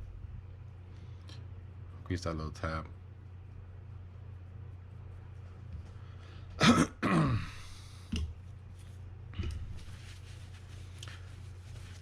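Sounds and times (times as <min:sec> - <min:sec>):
steady low hum: 0:00.0 - 0:12.0
person sighing: 0:07.1 - 0:08.0.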